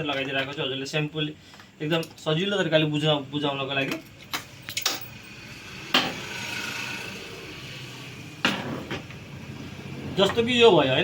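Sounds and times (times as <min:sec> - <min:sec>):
metal engine parts clinking: 0:03.8 - 0:05.3.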